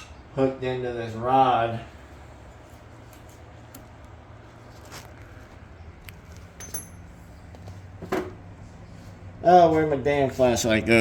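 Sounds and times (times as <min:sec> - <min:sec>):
low steady hum: 0:00.0 - 0:11.0
metal clinks and taps: 0:06.6 - 0:07.1.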